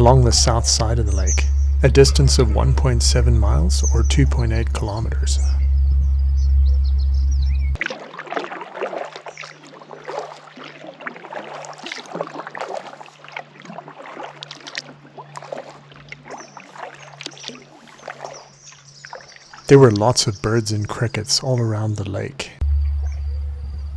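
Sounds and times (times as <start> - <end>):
water dripping: 0.0 - 7.7
birds chirping: 0.0 - 7.8, 22.6 - 23.9
loud low rumble: 0.0 - 7.8, 22.6 - 23.9
paddle splashing in water: 7.8 - 19.7.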